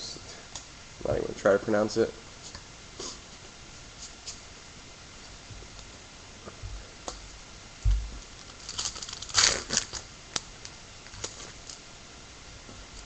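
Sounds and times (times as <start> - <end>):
low thump: 7.8 - 8.2
cards crinkling and sliding: 8.3 - 11.8.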